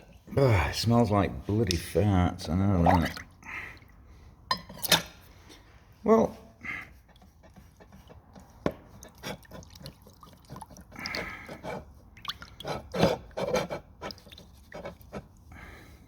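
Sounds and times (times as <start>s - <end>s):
water dripping and splashing: 2.8s - 4.0s, 7.1s - 11.5s, 12.1s - 12.9s.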